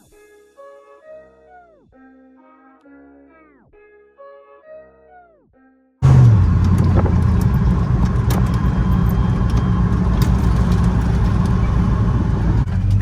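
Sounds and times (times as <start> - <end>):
pickup truck driving: 6.0 - 13.0.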